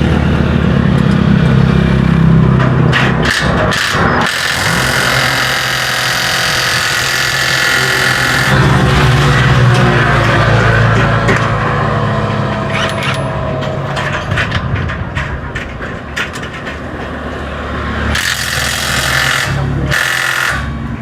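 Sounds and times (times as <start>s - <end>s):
engine running: 0.0s - 21.0s
wrench clicking on bolts: 12.7s - 13.4s.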